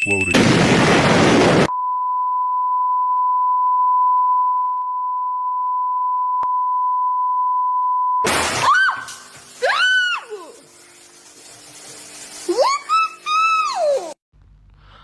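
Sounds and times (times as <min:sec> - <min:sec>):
steady electronic beep: 0:00.0 - 0:00.5
loud burst of noise: 0:00.4 - 0:01.7.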